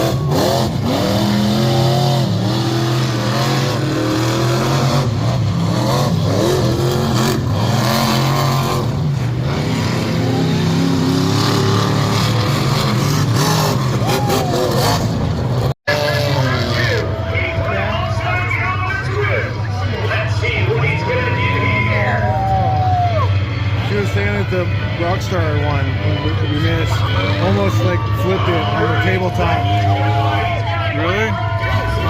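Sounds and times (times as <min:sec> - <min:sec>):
monster truck engine revving: 0:00.0 - 0:32.0.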